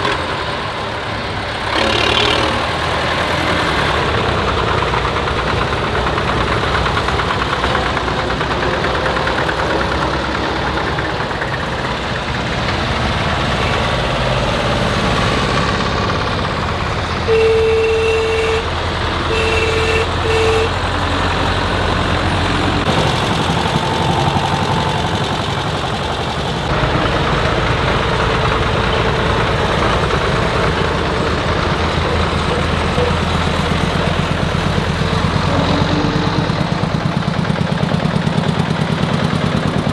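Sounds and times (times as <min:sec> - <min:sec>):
tractor engines running: 0:00.0 - 0:39.9
horn toots: 0:17.2 - 0:21.5.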